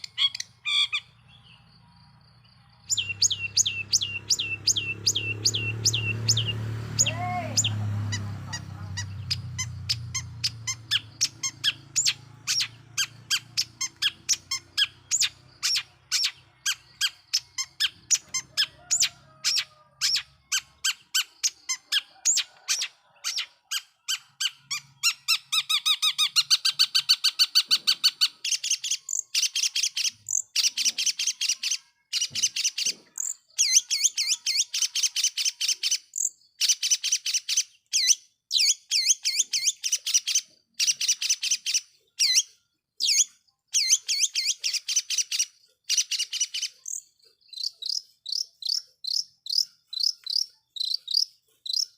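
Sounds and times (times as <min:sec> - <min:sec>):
shrike chirping: 0:02.8 - 0:19.1.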